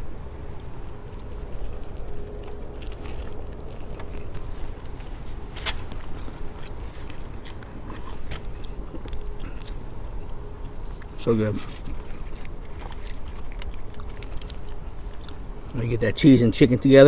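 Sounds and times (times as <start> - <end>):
man chewing food: 0.1 - 17.0.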